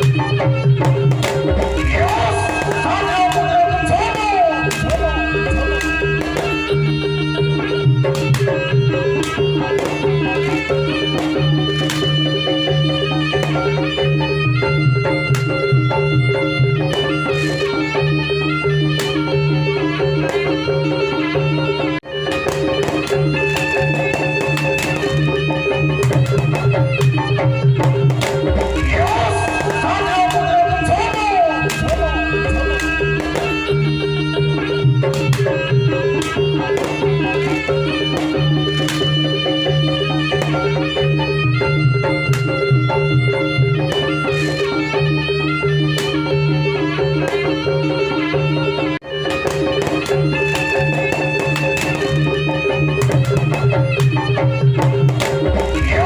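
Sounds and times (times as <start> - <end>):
steady drum beat: 0.0 - 7.4, 22.4 - 39.2, 54.8 - 56.0
gliding melodic line: 0.6 - 56.0
sustained instrument tones: 28.5 - 35.1.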